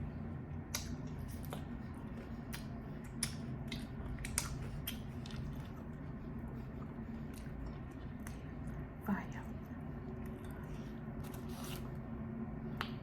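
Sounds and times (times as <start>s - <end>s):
steady low hum: 0.0s - 13.0s
wet mouth clicks and smacks: 0.6s - 1.7s, 2.5s - 5.7s
person chewing and biting: 0.6s - 8.8s, 10.1s - 12.1s.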